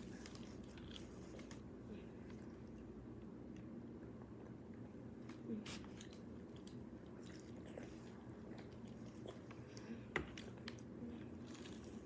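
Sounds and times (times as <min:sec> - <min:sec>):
person chewing: 0:06.0 - 0:12.0.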